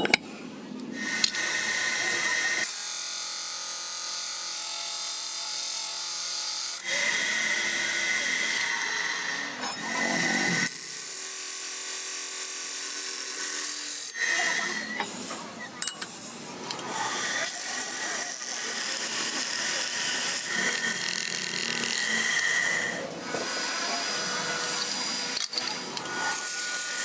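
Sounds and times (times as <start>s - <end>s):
handling clicks and knocks: 0.0s - 0.3s
small power tool whining: 1.0s - 27.0s.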